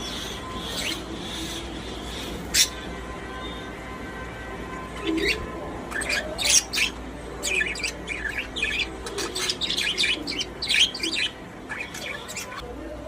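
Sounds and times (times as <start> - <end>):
budgerigars chirping: 0.0 - 2.9, 5.1 - 12.6.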